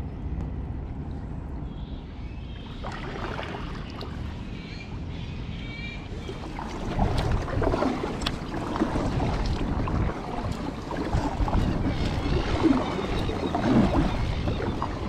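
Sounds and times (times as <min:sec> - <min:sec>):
paddle strokes splashing water: 0:02.6 - 0:04.5, 0:06.0 - 0:15.0
wind noise on microphone: 0:06.1 - 0:15.0.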